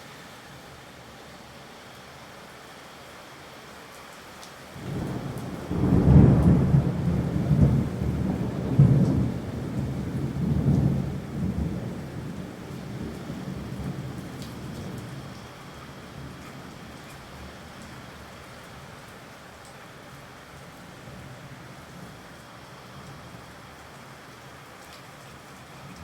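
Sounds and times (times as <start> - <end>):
steady rain hiss: 0.0 - 26.0
rolling thunder: 4.8 - 14.9.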